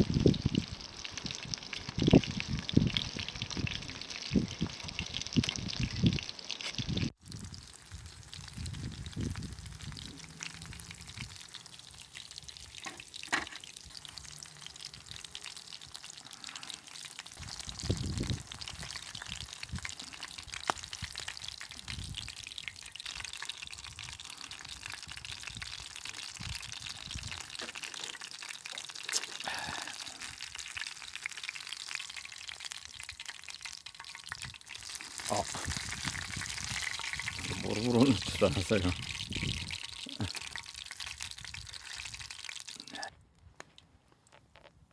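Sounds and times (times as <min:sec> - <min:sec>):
food deep-frying in hot oil: 0:00.0 - 0:43.1.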